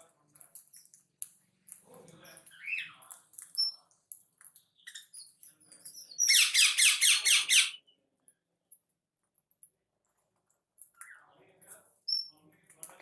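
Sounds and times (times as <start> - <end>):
small birds chirping: 0.1 - 13.0
rapid repeated bird calls: 6.2 - 7.8.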